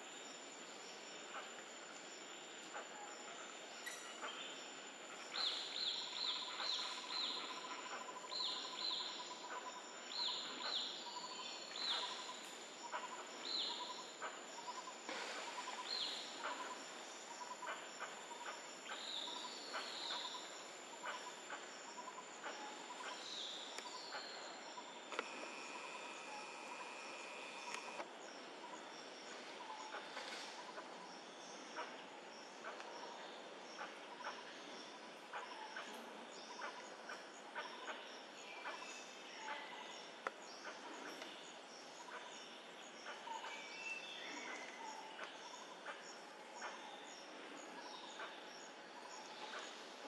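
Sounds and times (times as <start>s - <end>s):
birds chirping: 5.2s - 28.8s.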